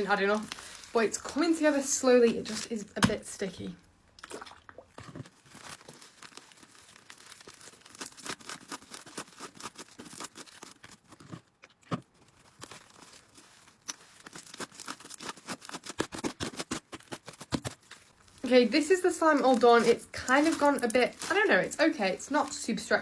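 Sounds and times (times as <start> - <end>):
slime crackling and popping: 5.3 - 11.2, 11.8 - 22.6.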